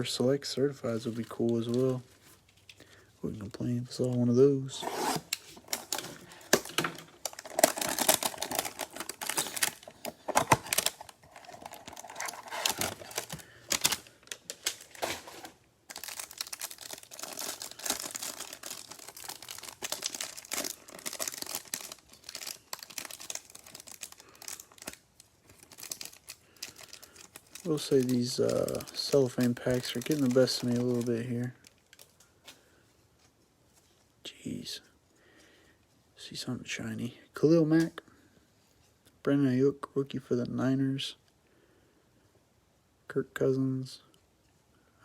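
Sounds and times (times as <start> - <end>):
cellophane crinkling and tearing: 0.9 - 2.8, 3.9 - 32.3.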